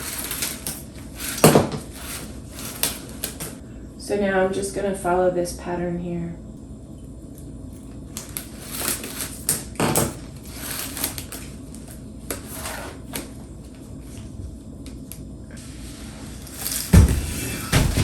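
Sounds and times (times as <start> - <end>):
plastic cane scraping and rustling: 0.0 - 3.6, 10.3 - 13.3.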